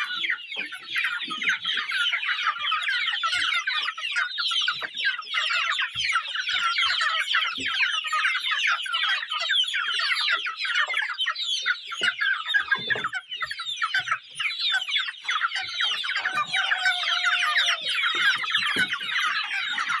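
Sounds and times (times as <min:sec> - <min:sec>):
chickens peeping and clucking: 0:00.0 - 0:20.0
longer lower chicken call: 0:16.2 - 0:18.4.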